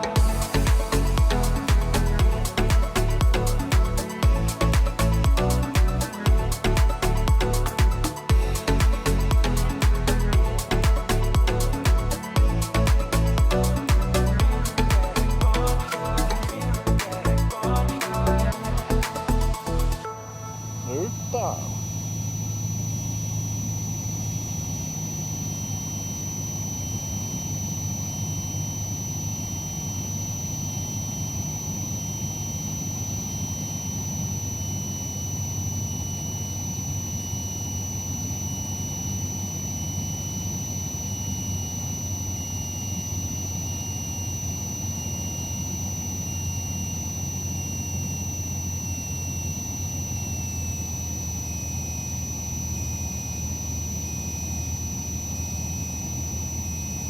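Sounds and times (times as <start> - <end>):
high-pitched electrical whine: 0.0 - 57.0
faint whine dropping in pitch: 20.0 - 57.0.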